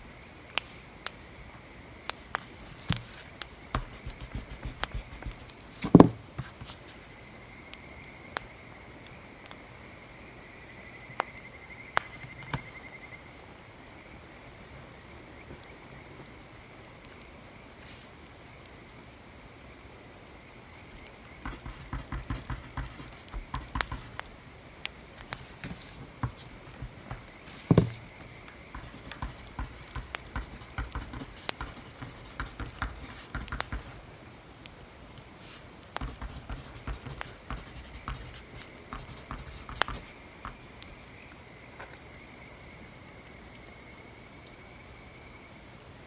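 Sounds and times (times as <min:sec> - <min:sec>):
pencil writing on paper: 0:02.4 - 0:06.9, 0:21.4 - 0:24.2, 0:25.2 - 0:34.0, 0:35.5 - 0:40.6
knock on desk: 0:05.8 - 0:06.2, 0:27.7 - 0:28.0.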